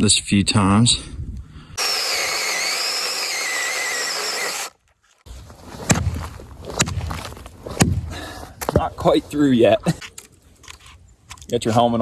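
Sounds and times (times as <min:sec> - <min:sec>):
chainsaw cutting wood: 0:01.8 - 0:04.8.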